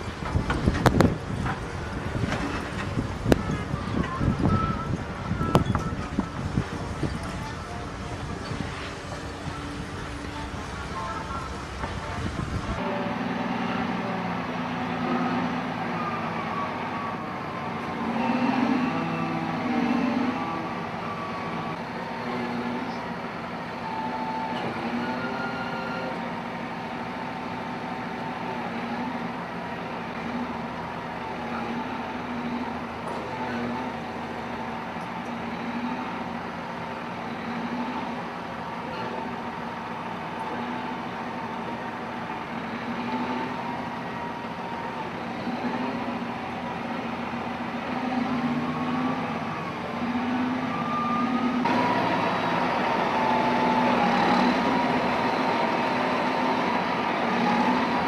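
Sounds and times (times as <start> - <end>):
heavy diesel machinery running: 0.0 - 58.0.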